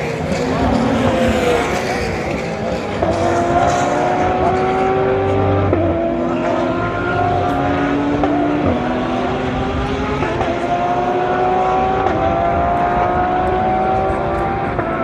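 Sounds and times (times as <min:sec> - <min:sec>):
gear change: 0:00.0 - 0:15.0
racing car engine at high revs: 0:00.0 - 0:15.0.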